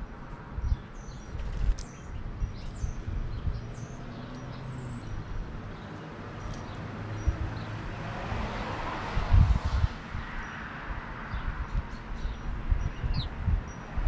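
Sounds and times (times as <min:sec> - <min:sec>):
small birds chirping: 0:00.6 - 0:07.8, 0:11.3 - 0:13.8.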